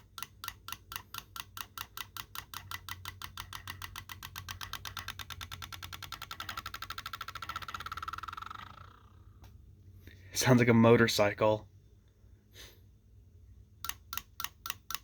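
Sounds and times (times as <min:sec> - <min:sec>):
small object clicking and rattling: 0:00.0 - 0:09.5, 0:13.8 - 0:15.0.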